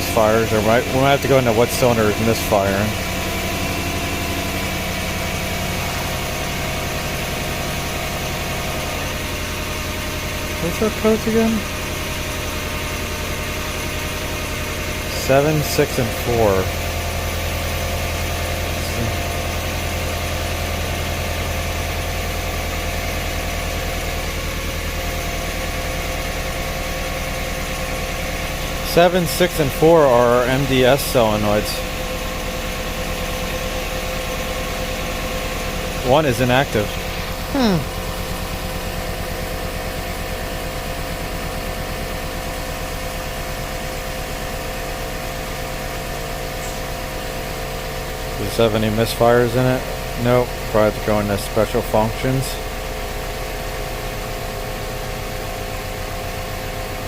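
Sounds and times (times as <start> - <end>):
car engine idling roughly: 0.0 - 57.0.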